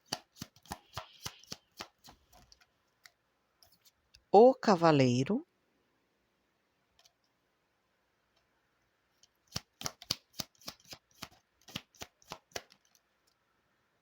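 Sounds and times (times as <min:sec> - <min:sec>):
cards being shuffled: 0:00.0 - 0:02.7, 0:09.5 - 0:13.0.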